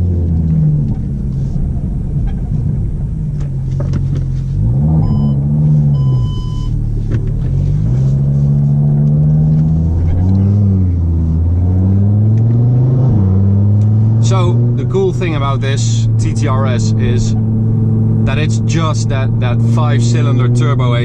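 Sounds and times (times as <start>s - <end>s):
car engine droning: 0.0s - 21.0s
short high beeps: 5.0s - 5.4s, 6.0s - 6.8s.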